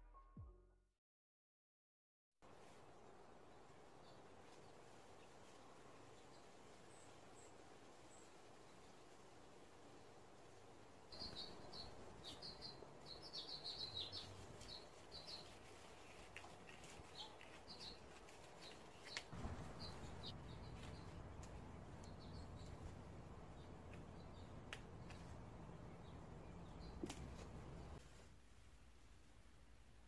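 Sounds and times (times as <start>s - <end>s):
small birds chirping: 2.5s - 28.0s.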